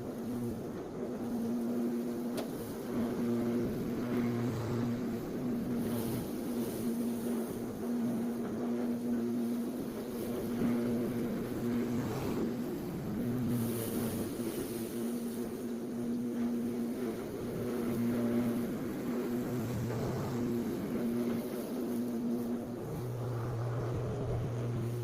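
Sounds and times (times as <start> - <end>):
lawn mower running: 17.2 - 25.0.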